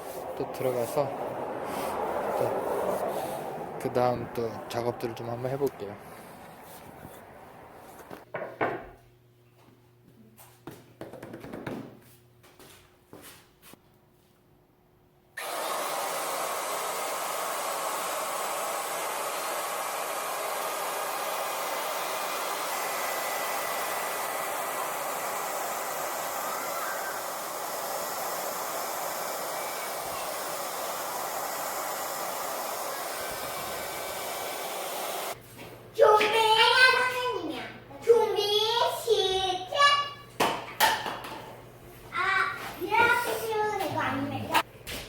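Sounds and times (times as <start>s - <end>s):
power tool motor running: 15.4s - 35.4s.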